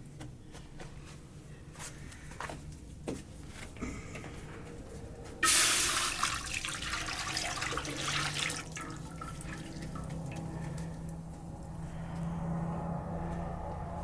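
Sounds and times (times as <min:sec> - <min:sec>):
water being poured: 0:05.4 - 0:10.6.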